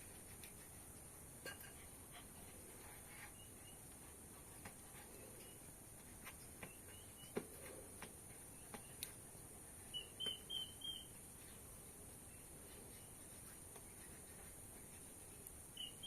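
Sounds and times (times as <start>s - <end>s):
steady high hiss: 0.0s - 16.0s
small bird chirping: 3.2s - 4.0s, 6.5s - 7.4s, 9.8s - 11.6s, 15.7s - 16.0s.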